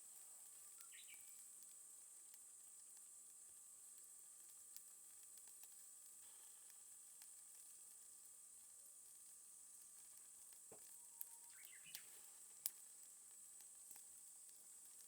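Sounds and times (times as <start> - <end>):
charcoal fire crackling: 0.0 - 15.0
soft hiss: 0.0 - 15.0
fire pops: 10.1 - 15.0.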